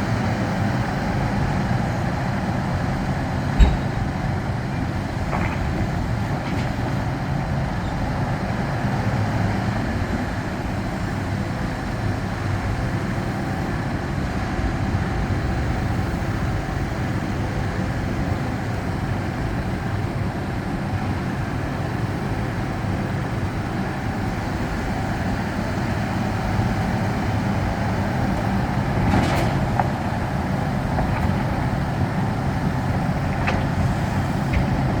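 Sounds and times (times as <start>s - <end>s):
heavy diesel engine running: 0.0s - 35.0s
sharp knocks: 3.6s - 4.2s.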